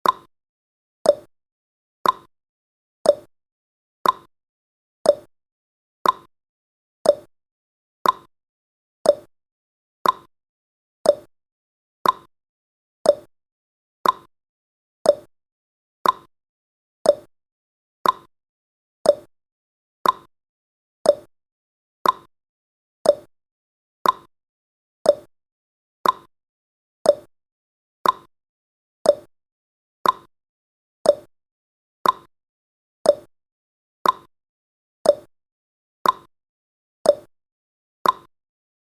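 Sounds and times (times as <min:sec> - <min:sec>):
countdown timer ticking: 0:03.1 - 0:03.3, 0:05.1 - 0:05.3, 0:07.1 - 0:07.3, 0:09.1 - 0:09.3, 0:11.1 - 0:11.3, 0:13.1 - 0:13.3, 0:15.1 - 0:15.3, 0:17.1 - 0:17.3, 0:19.1 - 0:19.3, 0:21.1 - 0:21.3, 0:23.0 - 0:23.3, 0:24.0 - 0:24.3, 0:25.1 - 0:25.3, 0:27.1 - 0:27.3, 0:28.0 - 0:28.3, 0:29.1 - 0:29.3, 0:30.0 - 0:30.3, 0:31.1 - 0:31.3, 0:32.0 - 0:32.3, 0:33.1 - 0:33.3, 0:34.0 - 0:34.3, 0:35.1 - 0:35.3, 0:36.0 - 0:36.3, 0:37.1 - 0:37.3, 0:38.0 - 0:38.3.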